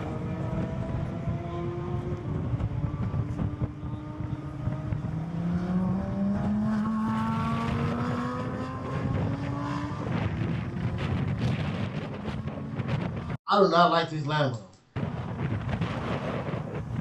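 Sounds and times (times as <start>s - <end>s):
sports car engine accelerating: 0.0s - 13.4s.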